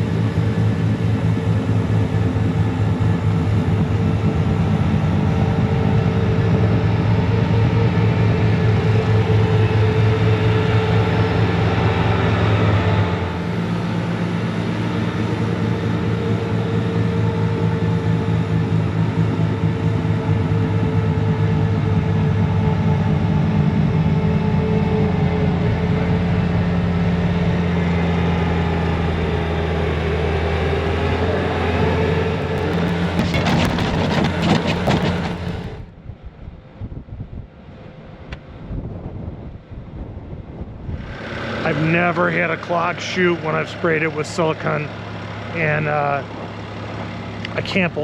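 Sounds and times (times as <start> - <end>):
diesel loader engine running: 32.3 - 35.8.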